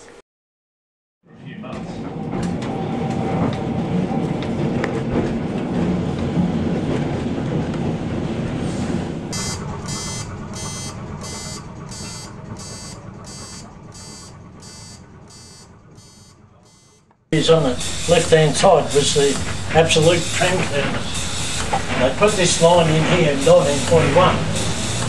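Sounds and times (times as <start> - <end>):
tram rumbling: 1.3 - 25.0
ringing signal: 9.3 - 25.0.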